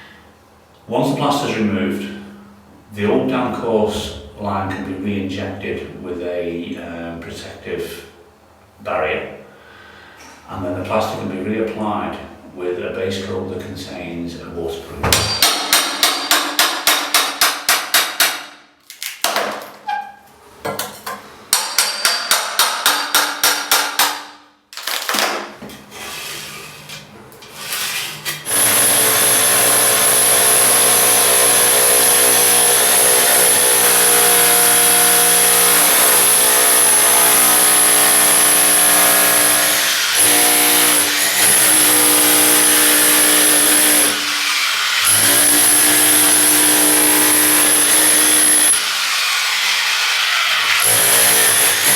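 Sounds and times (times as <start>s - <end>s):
rapid striking on plaster: 15.1s - 18.6s, 21.5s - 24.4s
power tool whining: 28.5s - 51.9s.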